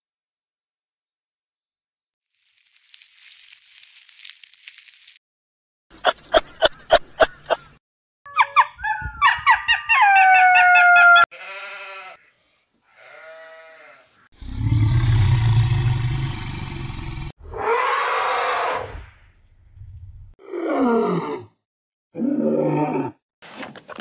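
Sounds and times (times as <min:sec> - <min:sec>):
loud rough low animal call: 0:14.4 - 0:18.9.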